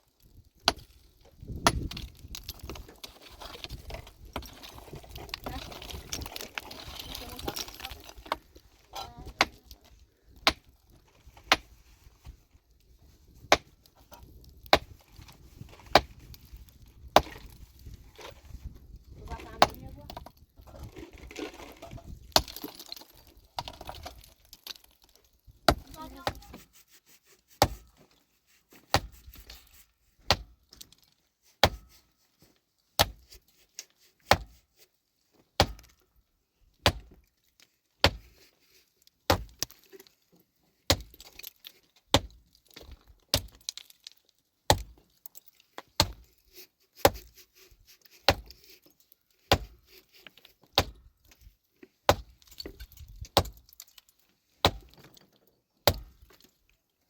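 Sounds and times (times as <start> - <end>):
pickaxe striking rock: 0.6 - 2.8, 10.4 - 10.7, 13.4 - 13.8, 17.1 - 17.6, 21.4 - 24.3, 25.7 - 26.5, 28.9 - 29.2, 30.3 - 30.6, 31.6 - 31.9, 33.0 - 33.3, 34.3 - 34.6, 35.6 - 36.0, 36.8 - 37.2, 38.0 - 38.3, 39.3 - 39.8, 40.9 - 41.5, 42.1 - 43.8, 44.7 - 45.0, 45.9 - 46.3, 48.3 - 48.5, 49.5 - 49.8, 50.8 - 51.1, 52.1 - 53.6, 54.6 - 55.0, 55.8 - 56.3.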